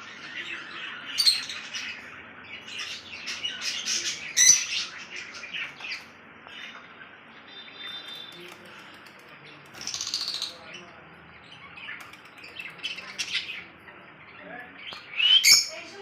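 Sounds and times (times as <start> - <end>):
lovebird chattering: 9.8 - 10.7.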